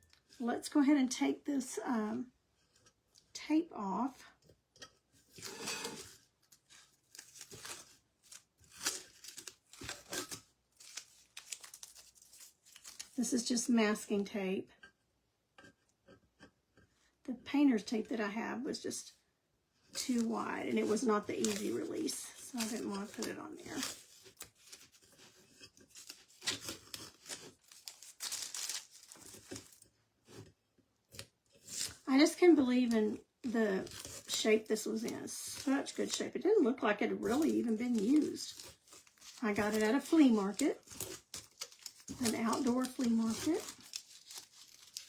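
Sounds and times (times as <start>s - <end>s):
tape crinkling: 5.3s - 13.5s, 20.0s - 30.4s, 31.1s - 36.5s, 37.1s - 45.0s
masking tape ripping off metal: 5.4s - 13.2s, 37.2s - 45.0s.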